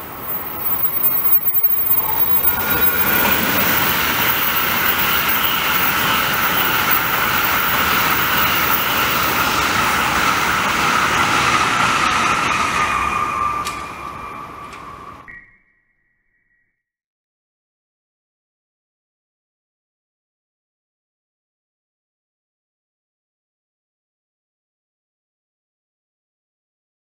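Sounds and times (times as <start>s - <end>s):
high-speed train rushing past: 0.0s - 15.3s
steady high whine: 0.0s - 15.7s.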